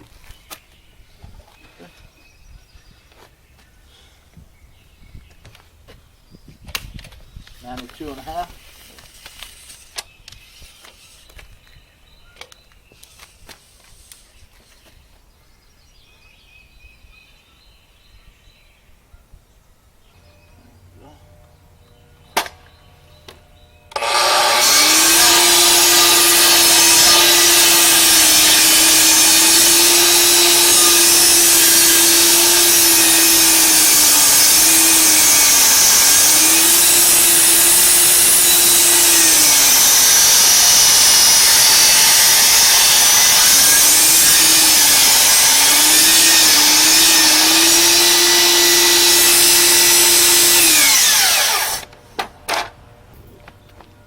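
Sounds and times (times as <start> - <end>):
electric power tool motor: 23.9 - 51.9.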